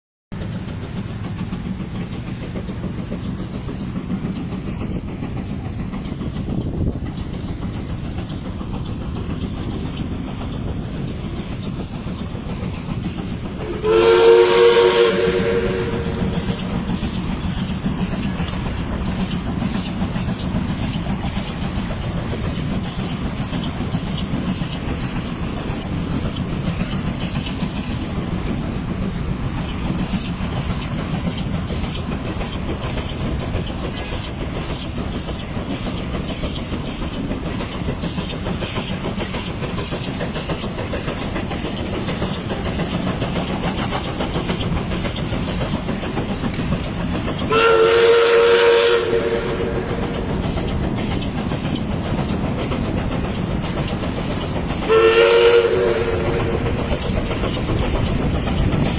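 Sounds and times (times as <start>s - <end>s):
steam locomotive running: 0.3s - 58.9s
steam whistle chord: 13.6s - 16.6s, 47.5s - 50.1s, 54.9s - 56.6s.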